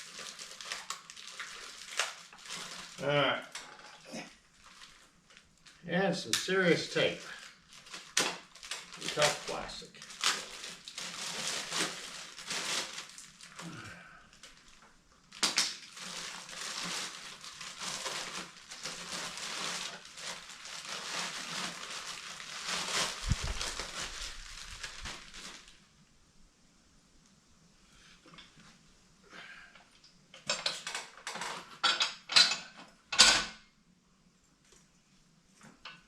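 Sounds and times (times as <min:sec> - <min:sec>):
tape ripping: 0:00.0 - 0:05.4, 0:06.4 - 0:25.8
plastic packaging crinkling: 0:00.0 - 0:05.9, 0:06.6 - 0:25.9.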